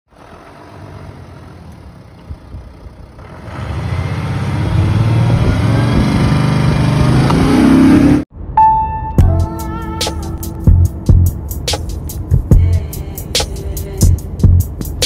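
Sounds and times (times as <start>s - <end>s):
car engine revving and accelerating: 3.2s - 8.3s.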